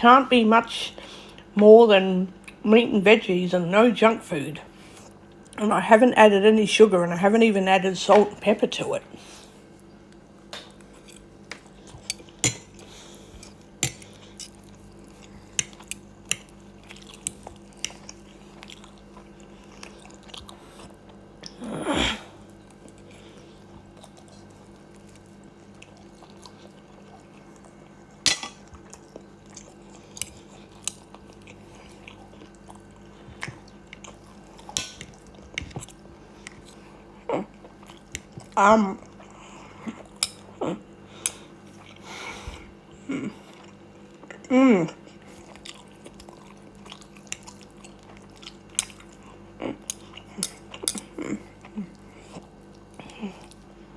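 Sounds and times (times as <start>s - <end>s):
faint steady hum: 0.0s - 53.9s
chewing: 9.2s - 21.6s, 22.4s - 40.6s, 43.0s - 53.9s.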